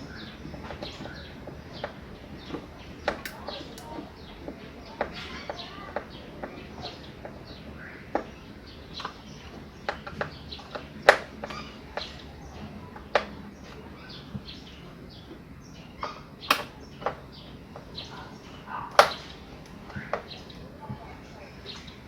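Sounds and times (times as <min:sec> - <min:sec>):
bird chirps: 0:00.0 - 0:20.7
sharp clicks and knocks: 0:01.8 - 0:04.0, 0:16.5 - 0:17.2, 0:19.0 - 0:20.2.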